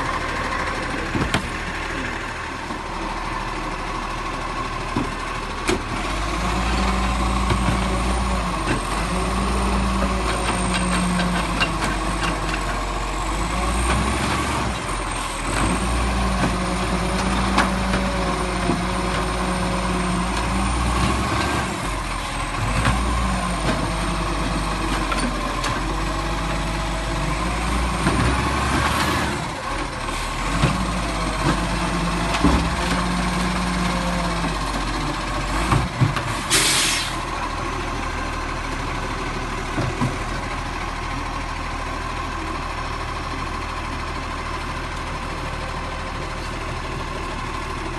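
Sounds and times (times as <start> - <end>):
truck diesel engine: 0.0 - 47.9
air brakes hiss: 36.4 - 37.2.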